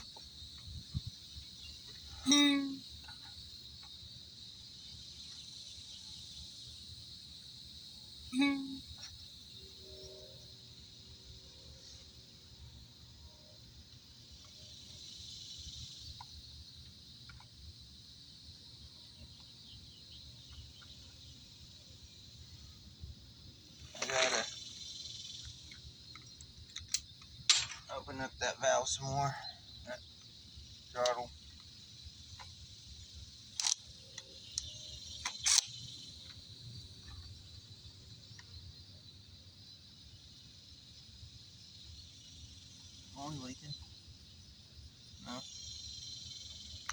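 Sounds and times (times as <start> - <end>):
insects trilling: 0.0 - 46.9
wind rumble on microphone: 0.6 - 1.6.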